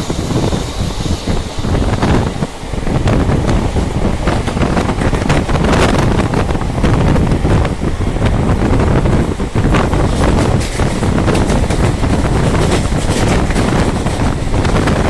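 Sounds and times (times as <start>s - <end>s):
train rumbling: 0.0s - 15.0s
wind buffeting microphone: 0.0s - 15.0s.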